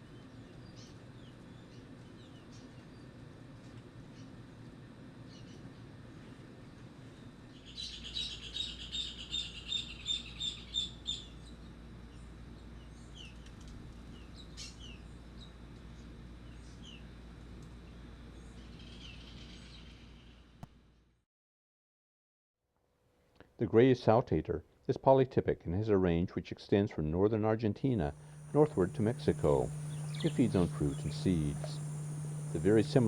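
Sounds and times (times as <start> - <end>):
low background rumble: 28.1 - 33.0
bird call notes: 28.2 - 33.0
songbird singing: 28.2 - 33.0.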